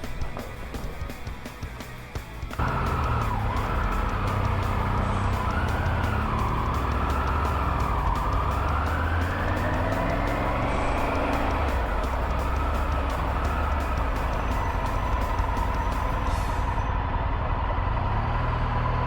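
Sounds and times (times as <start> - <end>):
vehicle engine running: 0.0 - 19.0
high tone rising and falling: 2.6 - 16.6.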